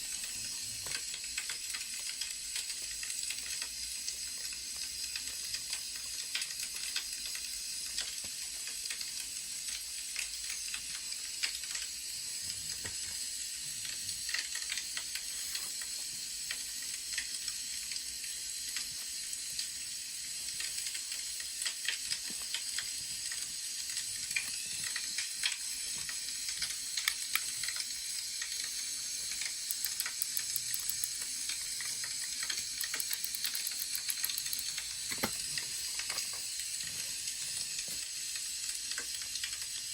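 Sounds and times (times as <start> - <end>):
wood fire crackling: 20.5 - 39.8.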